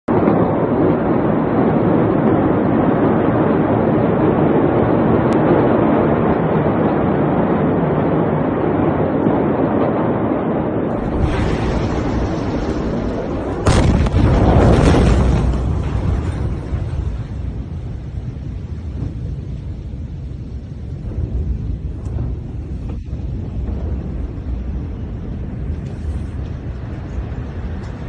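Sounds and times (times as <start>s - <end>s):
explosion blast: 0.1s - 28.0s
sustained rumble: 0.2s - 28.0s
steady loud noise: 10.7s - 28.0s.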